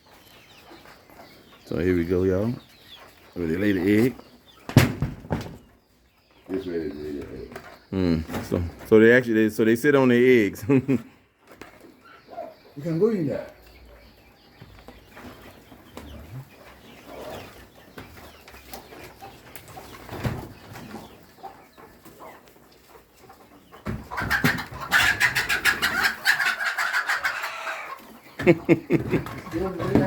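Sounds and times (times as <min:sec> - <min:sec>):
hens clucking: 0:00.0 - 0:30.0
hens squawking: 0:06.4 - 0:30.0.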